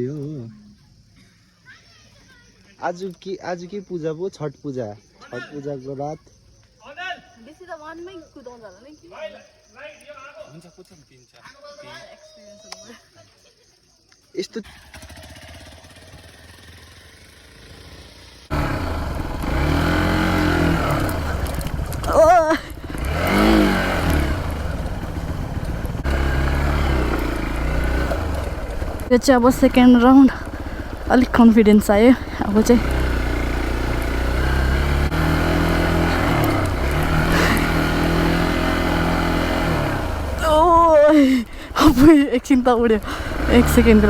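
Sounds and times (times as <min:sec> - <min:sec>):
dirt bike engine revving: 0:14.6 - 0:44.0.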